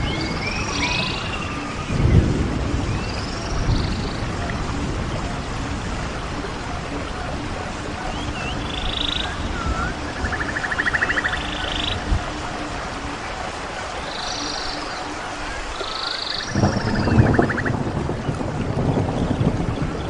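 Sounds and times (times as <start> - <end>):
small birds whistling and trilling: 0.0 - 4.3, 8.0 - 12.4, 14.0 - 17.8
wind gusts on microphone: 0.0 - 20.0.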